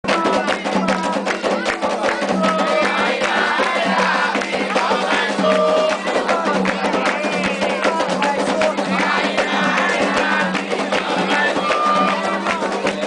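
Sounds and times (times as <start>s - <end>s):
hand drums and percussion: 0.0s - 13.0s
group singing: 0.1s - 13.0s.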